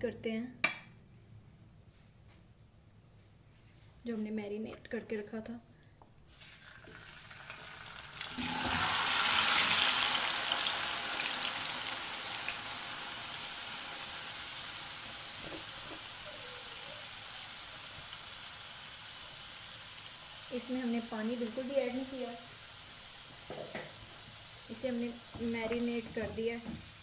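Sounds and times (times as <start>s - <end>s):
chicken sizzling in hot oil: 6.3s - 27.0s.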